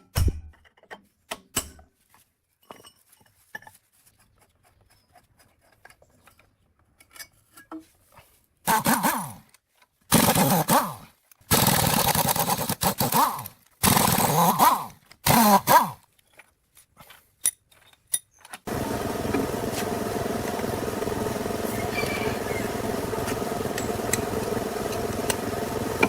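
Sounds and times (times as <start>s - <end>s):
power tool running: 13.8s - 14.5s, 18.7s - 26.0s.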